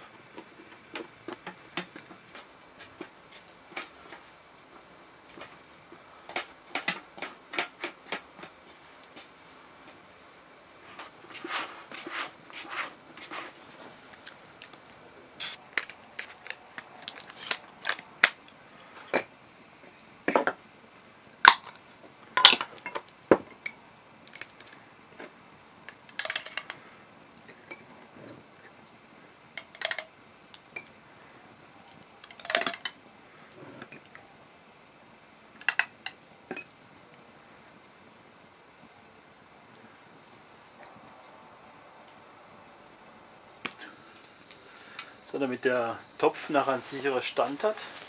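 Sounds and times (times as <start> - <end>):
cookware and utensils clattering: 26.2 - 26.8, 29.6 - 30.1, 32.3 - 33.0.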